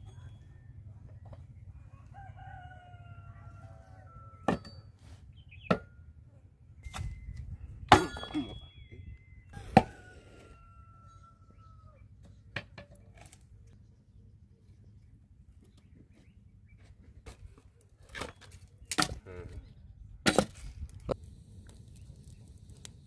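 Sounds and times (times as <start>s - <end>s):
rooster crowing: 1.7s - 4.8s, 9.6s - 12.1s.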